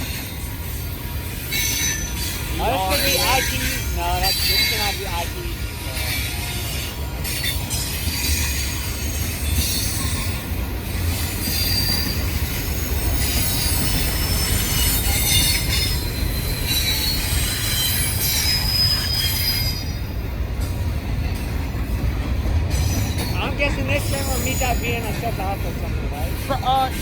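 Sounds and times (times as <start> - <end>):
wheel squeals: 0.0 - 5.1, 6.0 - 20.2, 22.7 - 25.3
freight train cars rumbling: 0.0 - 27.0.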